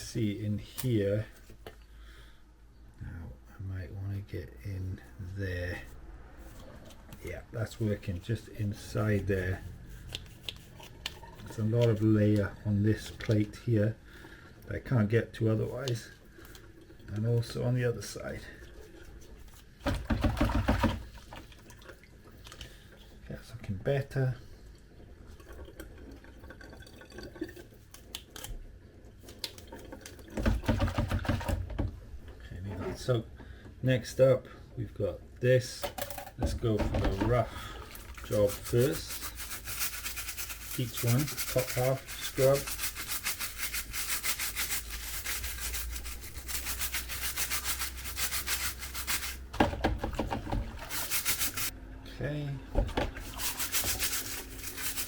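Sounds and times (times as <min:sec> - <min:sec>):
brush scrubbing plastic: 0:05.8 - 0:13.6, 0:36.4 - 0:51.7, 0:53.0 - 0:55.0.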